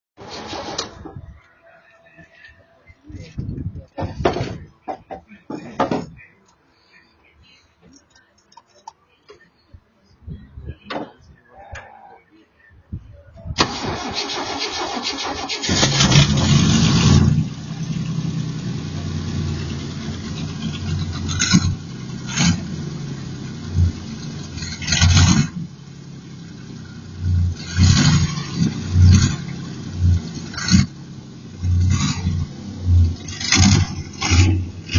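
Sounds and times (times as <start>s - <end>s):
car engine starting and revving: 13.6s - 34.9s.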